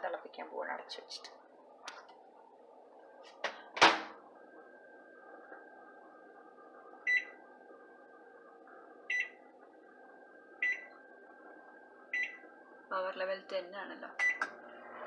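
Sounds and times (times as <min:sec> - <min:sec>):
faint steady hum: 0:00.0 - 0:15.0
microwave keypad beeping: 0:07.1 - 0:07.4, 0:09.1 - 0:09.4, 0:10.6 - 0:10.9, 0:12.1 - 0:12.4, 0:14.2 - 0:14.5.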